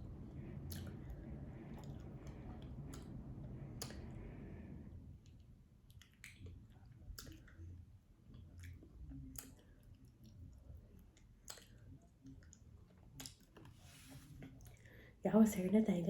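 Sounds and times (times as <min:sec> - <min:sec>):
close-miked chewing: 0:00.2 - 0:04.4, 0:05.2 - 0:14.9
wet mouth clicks: 0:00.6 - 0:01.0, 0:01.8 - 0:03.2, 0:03.8 - 0:04.2, 0:05.9 - 0:07.6, 0:11.2 - 0:12.6, 0:13.2 - 0:13.7.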